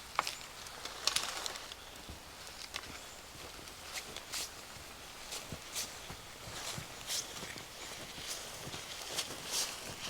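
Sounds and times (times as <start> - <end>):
light steady hiss: 0.0 - 10.0
crunching footsteps: 0.2 - 10.0.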